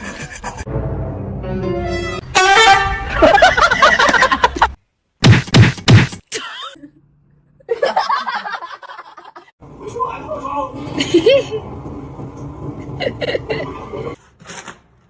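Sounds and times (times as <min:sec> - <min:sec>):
people laughing: 0:03.1 - 0:04.8, 0:07.7 - 0:09.5, 0:10.9 - 0:11.6, 0:12.9 - 0:14.2
people talking: 0:09.8 - 0:11.4.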